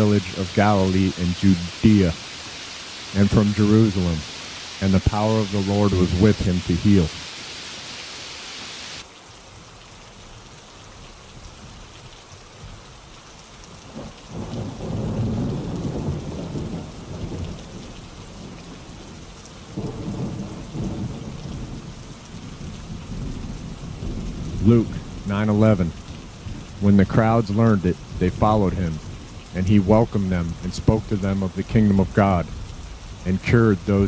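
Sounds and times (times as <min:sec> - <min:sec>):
steady rainfall: 0:00.0 - 0:34.0
low rolls of thunder: 0:04.9 - 0:07.2, 0:13.8 - 0:34.0.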